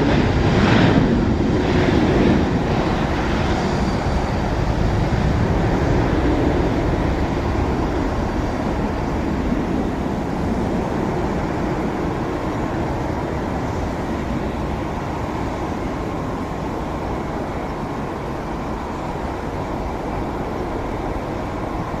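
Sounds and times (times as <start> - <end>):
high jet whine: 0.0 - 22.0
jet engine rumble: 0.0 - 22.0.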